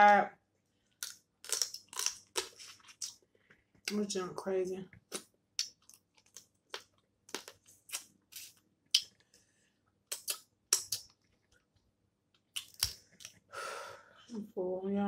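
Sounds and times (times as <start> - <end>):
crab shells cracking: 1.0 - 3.2, 12.5 - 13.4.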